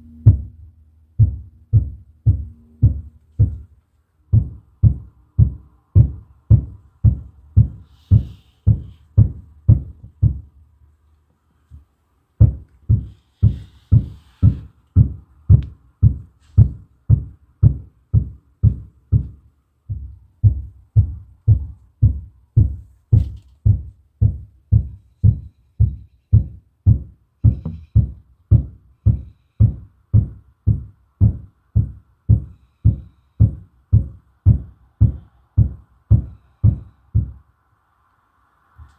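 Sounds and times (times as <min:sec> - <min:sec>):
muffled banging through ceiling: 0:11.7 - 0:37.4.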